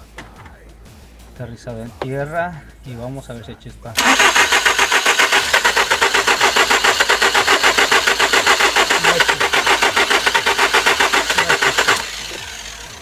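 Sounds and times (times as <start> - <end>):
starter cranking engine: 4.0 - 13.0.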